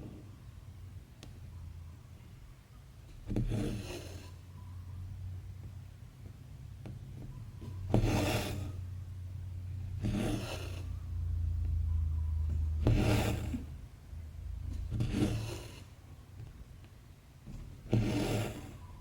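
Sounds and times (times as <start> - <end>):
steady low hum: 4.3 - 19.0.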